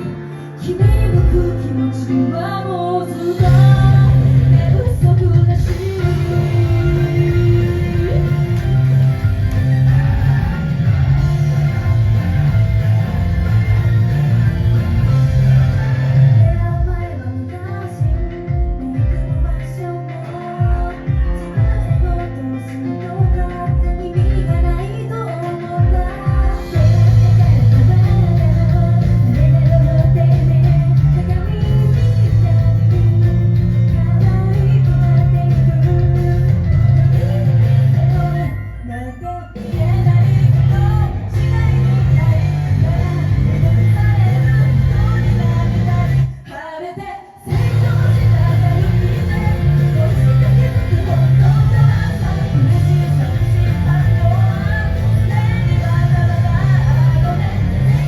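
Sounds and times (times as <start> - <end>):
electric guitar: 0.0 - 46.6, 47.5 - 58.0
person singing: 0.0 - 58.0
heavy bass: 3.2 - 17.3, 25.8 - 38.8, 39.6 - 46.4, 47.5 - 58.0.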